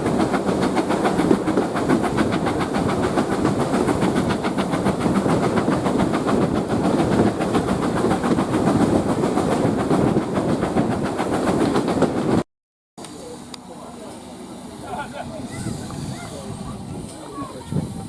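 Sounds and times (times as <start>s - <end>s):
train running: 0.0s - 12.4s, 13.0s - 18.0s.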